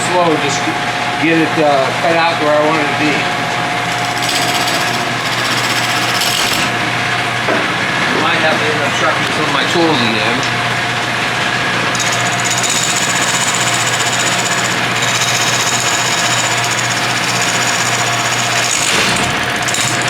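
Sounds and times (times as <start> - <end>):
lathe motor hum: 0.0 - 20.0
turning tool chattering on wood: 3.8 - 6.7, 11.9 - 20.0.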